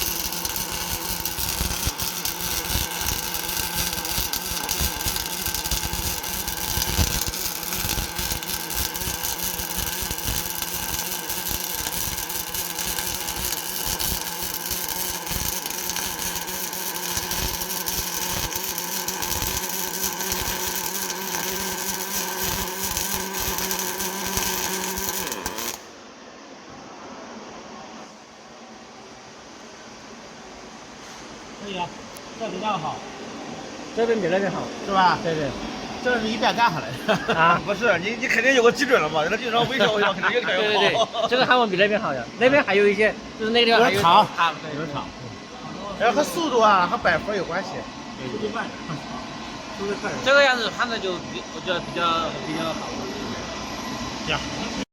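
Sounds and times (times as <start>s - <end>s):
welding arcs sizzling and crackling: 0.0s - 25.9s, 36.0s - 44.6s
machine hum: 0.0s - 30.8s, 31.4s - 54.9s.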